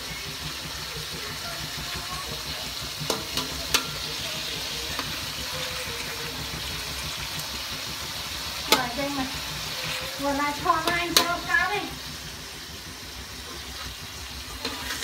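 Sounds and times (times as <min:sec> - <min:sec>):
food sizzling in a wok: 0:00.0 - 0:15.0
spatula clicking on wok: 0:02.7 - 0:05.2, 0:08.7 - 0:09.2, 0:10.6 - 0:11.5.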